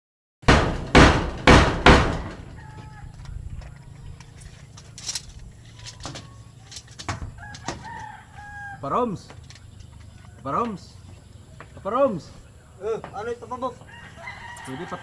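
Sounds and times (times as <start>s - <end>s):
loud bangs: 0.4s - 2.6s.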